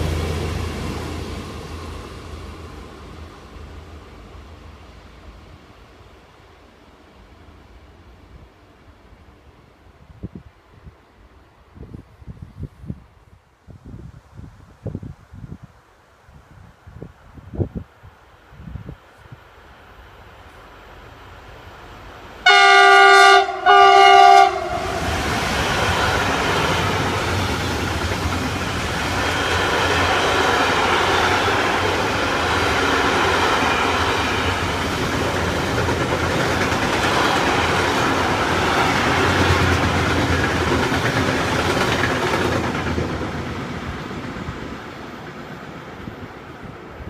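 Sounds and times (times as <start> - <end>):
train horn blasts: 22.4 - 25.2
train wheels clattering over rails: 25.0 - 46.1.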